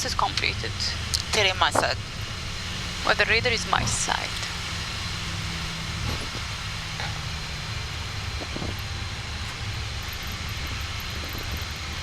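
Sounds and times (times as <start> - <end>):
aircraft engines idling: 0.0 - 12.0
faint thin steady whine: 0.0 - 12.0.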